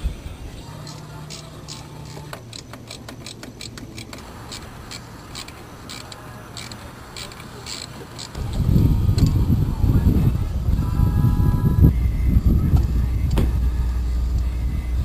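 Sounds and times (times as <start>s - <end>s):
ratchet wrench clicking: 0.8s - 8.4s
loud low sound: 8.4s - 15.0s.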